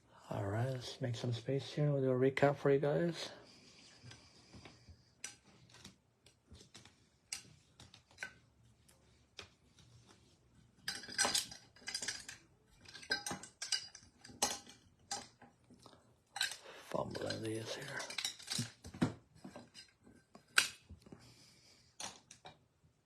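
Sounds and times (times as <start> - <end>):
cards clicking and rustling on table: 5.2 - 15.8, 16.4 - 21.2.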